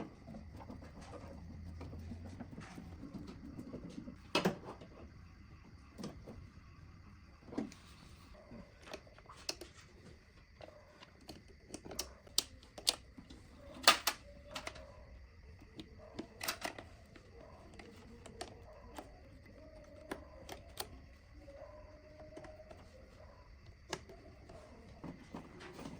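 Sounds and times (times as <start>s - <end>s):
small parts and tools clicking: 11.0s - 14.9s, 15.7s - 21.3s.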